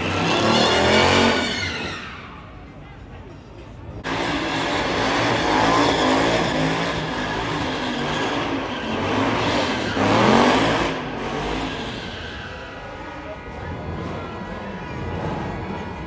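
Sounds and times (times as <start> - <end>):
engine revving hard: 0.0 - 1.7, 4.0 - 12.2.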